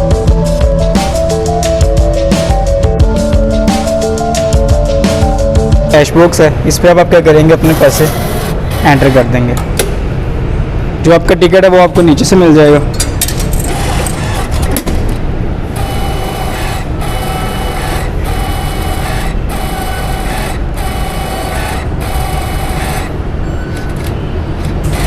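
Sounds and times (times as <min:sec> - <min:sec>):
vending machine mechanism whirring: 0:07.3 - 0:10.1, 0:12.9 - 0:25.0.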